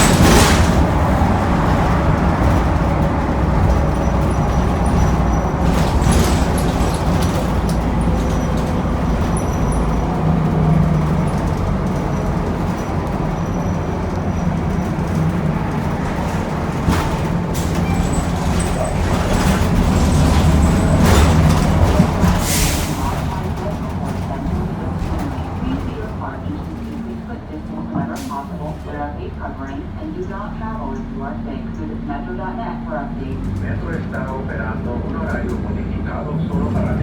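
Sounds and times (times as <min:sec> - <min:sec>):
body rattles and knocks: 0:00.0 - 0:22.5
bus engine running: 0:00.0 - 0:37.0
low rumble of road noise: 0:00.0 - 0:37.0.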